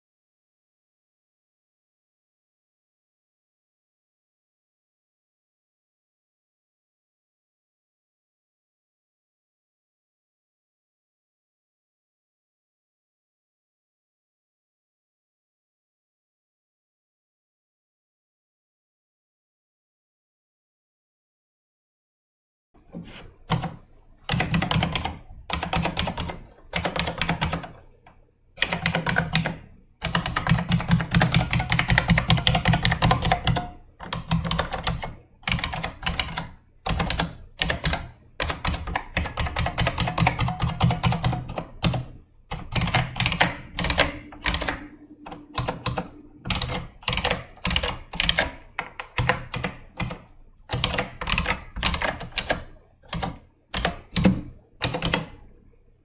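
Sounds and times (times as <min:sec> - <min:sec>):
clicky keyboard typing: 0:23.0 - 0:27.9, 0:28.6 - 0:55.4.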